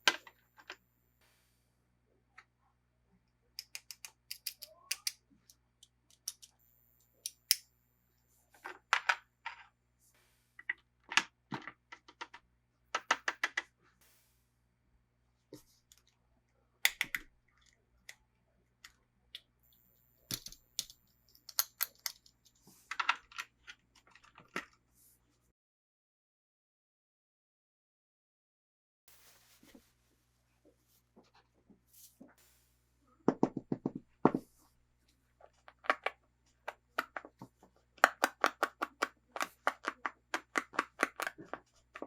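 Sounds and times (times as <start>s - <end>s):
plastic toy pieces clicking: 3.6s - 6.5s, 16.9s - 17.3s, 20.3s - 24.6s, 38.0s - 42.0s.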